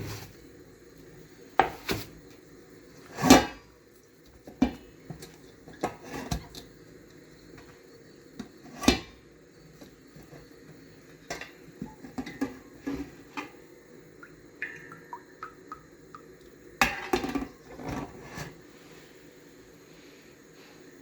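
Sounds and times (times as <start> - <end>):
dishes clattering: 11.3 - 13.6, 16.8 - 18.4
dishes knocking and clinking: 16.8 - 18.0.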